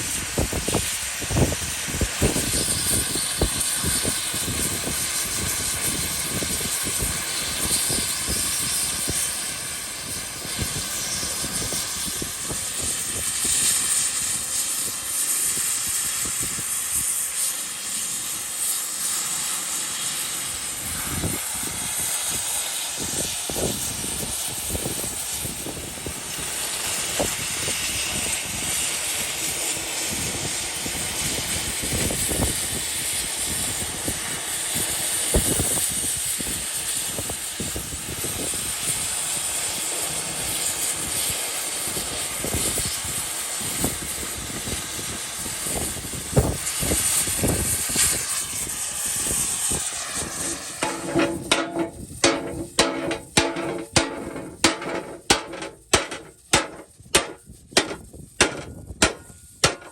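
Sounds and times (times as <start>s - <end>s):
gas cutting torch hissing: 0.0s - 59.9s
crackles and pops of cutting steel: 0.2s - 16.3s, 46.7s - 59.9s.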